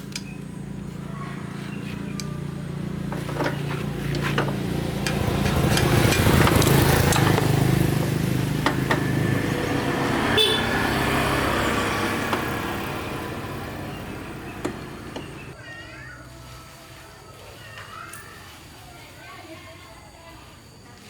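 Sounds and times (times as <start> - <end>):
vehicle engine humming: 0.0 - 15.6.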